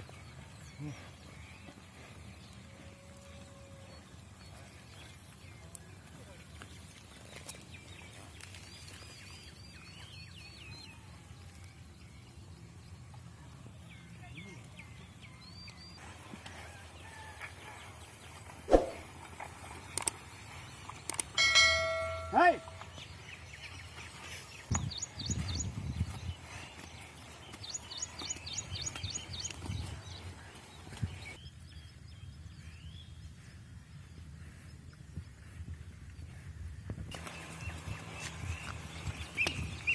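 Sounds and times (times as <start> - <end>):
bird calling high notes: 21.4 - 22.9
bird chirping: 21.4 - 33.5.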